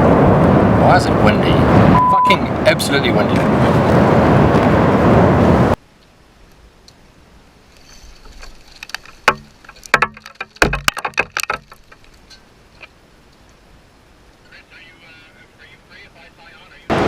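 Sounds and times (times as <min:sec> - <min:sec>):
wind buffeting microphone: 0:00.0 - 0:05.8
clicks and knocks: 0:08.8 - 0:12.4.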